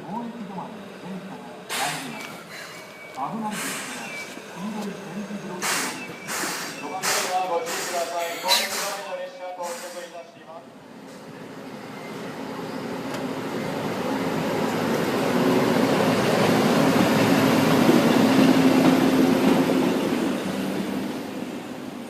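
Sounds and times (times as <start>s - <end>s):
electric locomotive passing: 0.0s - 9.5s, 10.2s - 22.0s.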